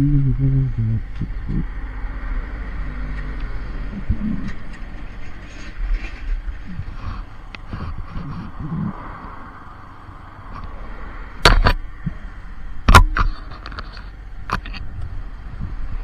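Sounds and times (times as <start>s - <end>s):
person speaking: 0.0s - 1.7s
vehicle engine rumbling: 0.0s - 16.0s.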